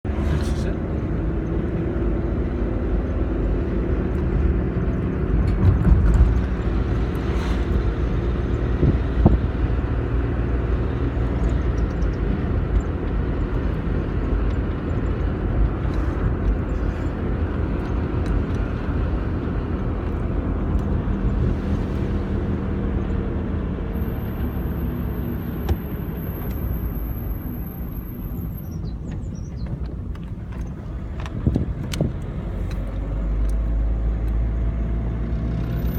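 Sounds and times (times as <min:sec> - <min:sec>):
car engine and tyre rumble: 0:00.0 - 0:35.9.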